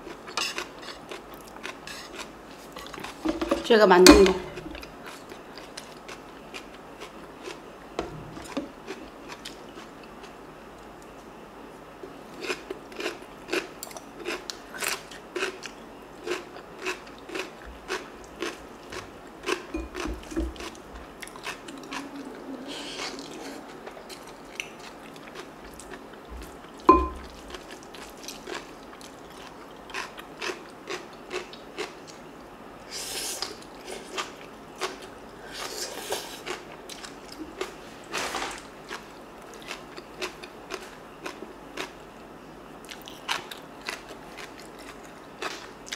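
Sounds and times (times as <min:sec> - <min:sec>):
crunchy chewing: 0:00.0 - 0:03.2, 0:12.3 - 0:32.3, 0:42.8 - 0:45.9.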